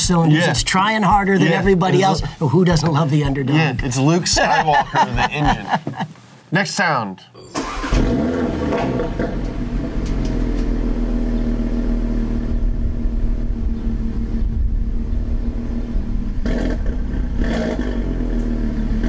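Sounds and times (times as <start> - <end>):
car engine idling: 7.5 - 19.0
engine revving: 7.5 - 19.0
wind on microphone: 12.4 - 17.6.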